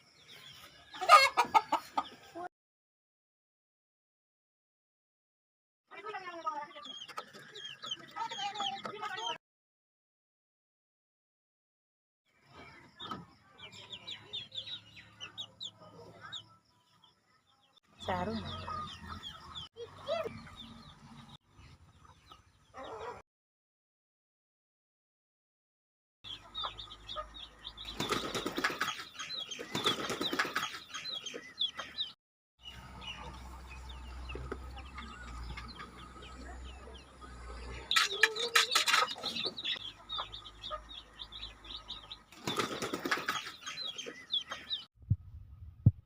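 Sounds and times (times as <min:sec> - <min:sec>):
small birds chirping: 0:00.0 - 0:02.5, 0:05.9 - 0:09.4, 0:12.3 - 0:23.2, 0:26.2 - 0:44.9
chickens flapping wings: 0:27.8 - 0:30.9, 0:42.3 - 0:43.8.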